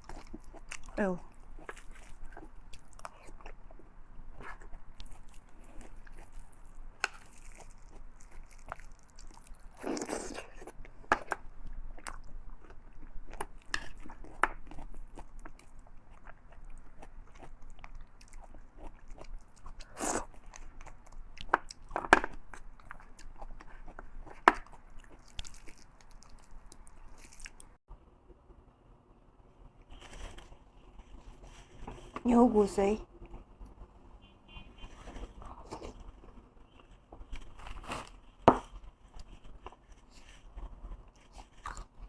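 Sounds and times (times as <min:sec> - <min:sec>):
person chewing and biting: 0:00.0 - 0:27.8, 0:41.2 - 0:42.0.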